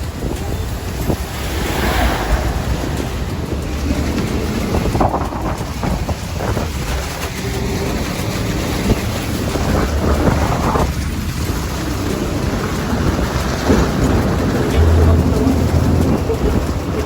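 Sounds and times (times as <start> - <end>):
moving vehicle rumble: 0.0 - 17.0
wind buffeting the microphone: 0.0 - 17.0.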